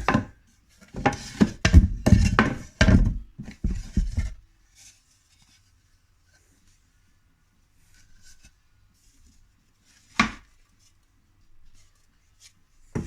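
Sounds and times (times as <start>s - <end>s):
wooden boards knocking together: 1.0s - 4.4s.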